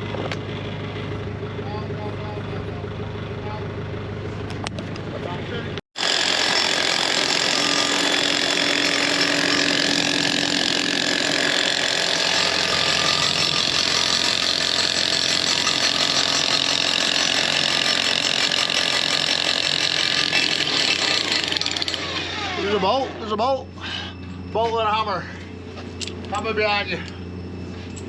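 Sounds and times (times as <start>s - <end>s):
engine idling: 0.0s - 5.8s.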